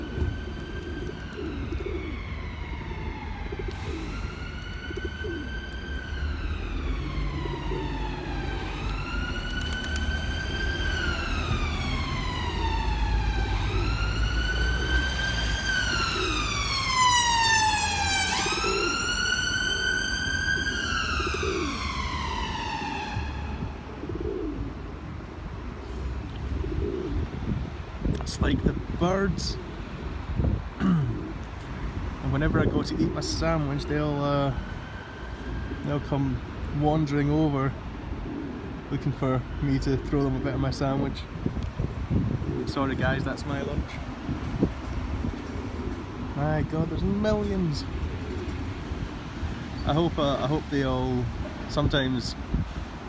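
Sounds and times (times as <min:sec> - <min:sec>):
pigeons cooing: 0:00.0 - 0:05.7, 0:06.8 - 0:27.7, 0:28.8 - 0:32.0, 0:37.4 - 0:41.0, 0:42.1 - 0:43.2, 0:44.0 - 0:50.5
emergency vehicle siren wailing: 0:00.0 - 0:28.0, 0:31.7 - 0:53.0.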